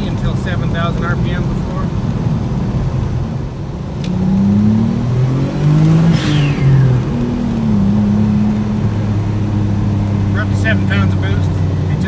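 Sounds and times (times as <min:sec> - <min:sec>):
car engine accelerating: 0:00.0 - 0:12.0
falling turbo whistle: 0:05.6 - 0:08.0.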